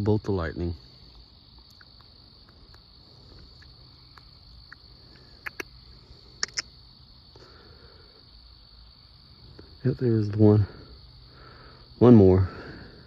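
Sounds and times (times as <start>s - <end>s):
crickets trilling: 0.0s - 13.0s
sharp clicks: 1.6s - 2.8s, 3.6s - 6.7s.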